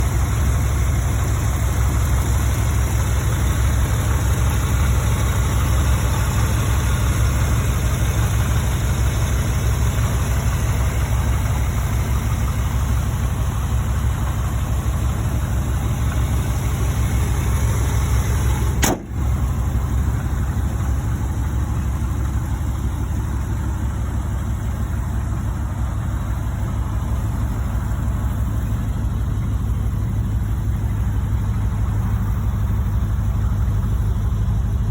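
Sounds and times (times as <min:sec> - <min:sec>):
pickup engine idling: 0:00.0 - 0:34.9
brief click: 0:18.8 - 0:19.2.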